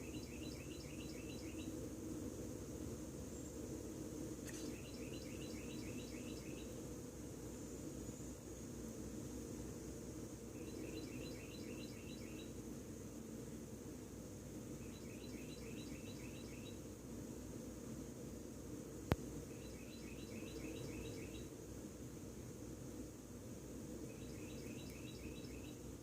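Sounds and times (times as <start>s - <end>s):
songbird singing: 0.0s - 1.9s, 4.4s - 6.9s, 10.3s - 12.9s, 14.5s - 16.9s, 19.0s - 21.6s, 23.7s - 26.0s
high insect hum: 0.0s - 26.0s.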